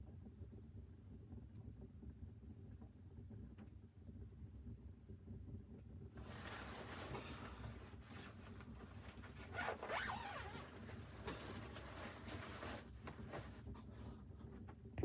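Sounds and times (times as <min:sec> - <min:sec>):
zipper rasping: 0:06.2 - 0:14.1.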